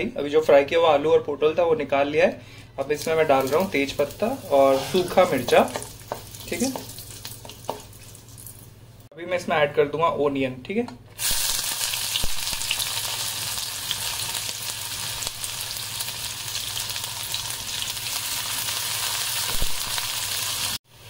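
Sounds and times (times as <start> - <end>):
onion sizzling in hot oil: 2.9 - 9.0, 11.2 - 21.0.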